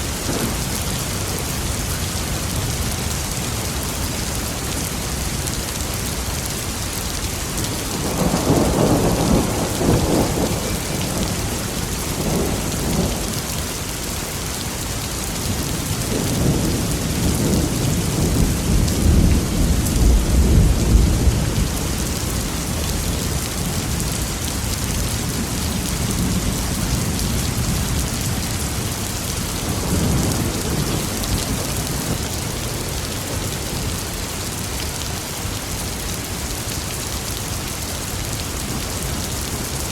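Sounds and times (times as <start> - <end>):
heavy rain: 0.0 - 39.9
rolling thunder: 7.6 - 13.5, 15.5 - 24.1.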